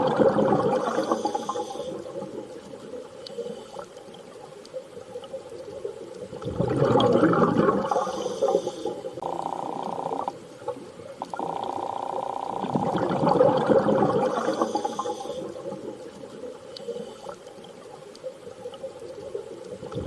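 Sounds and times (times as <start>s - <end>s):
underwater rushing and bubbling: 0.0s - 20.0s.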